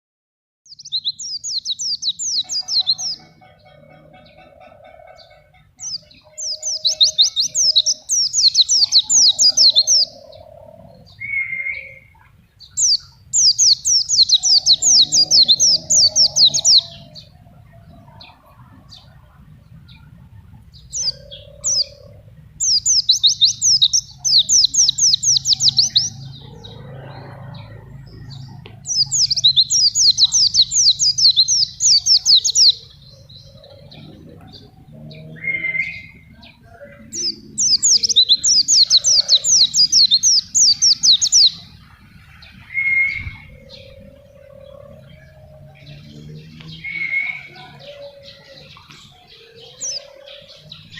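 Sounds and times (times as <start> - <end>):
small bird singing rapid notes: 0.7 - 4.3, 5.2 - 10.3, 11.0 - 17.3, 22.6 - 26.8, 28.3 - 34.0, 35.1 - 41.7.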